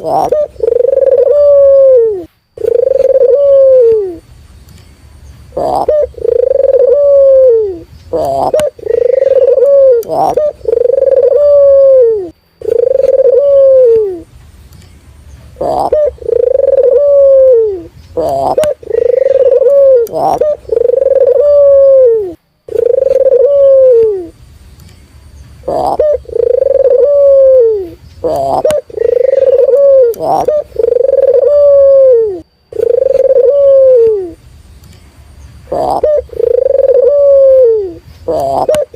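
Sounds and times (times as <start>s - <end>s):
dove cooing: 0.0s - 4.2s, 5.5s - 14.2s, 15.6s - 24.4s, 25.6s - 34.4s, 35.7s - 38.9s.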